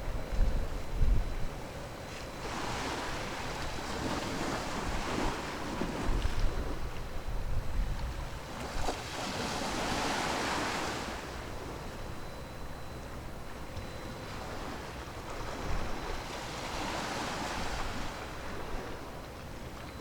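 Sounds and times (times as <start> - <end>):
wind rumbling on microphone: 0.0 - 1.8, 2.4 - 10.4
sea waves washing in: 8.5 - 11.8.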